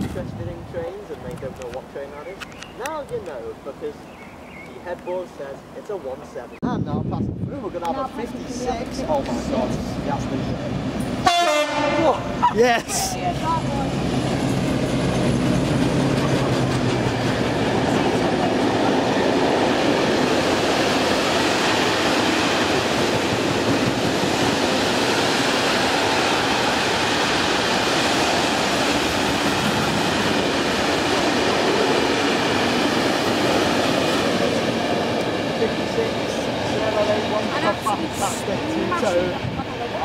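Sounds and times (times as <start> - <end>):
train wheels rushing on rails: 8.7 - 12.4, 13.2 - 40.0.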